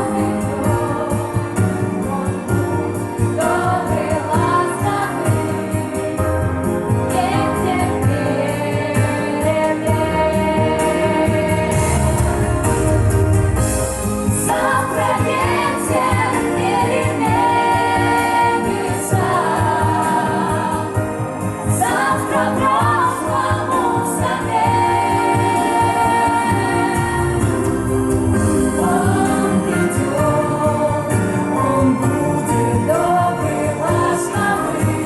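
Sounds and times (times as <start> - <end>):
voices singing: 0.0 - 13.0, 14.2 - 35.0
backing music with bass: 0.0 - 35.0.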